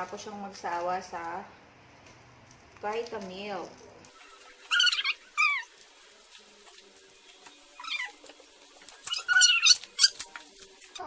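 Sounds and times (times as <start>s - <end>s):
toddler squealing: 4.7s - 5.7s, 7.8s - 8.2s, 9.1s - 10.2s.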